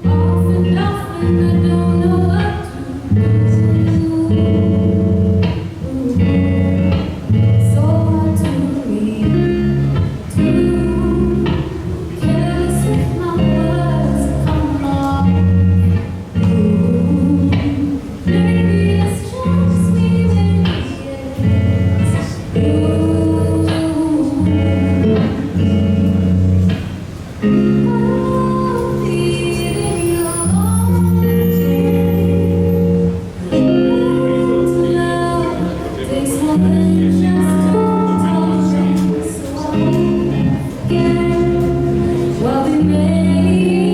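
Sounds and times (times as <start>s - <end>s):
person singing: 0.0s - 25.8s, 27.5s - 43.9s
guitar accompaniment: 0.0s - 43.9s
bass line: 6.2s - 17.7s, 21.4s - 26.8s, 27.4s - 43.9s.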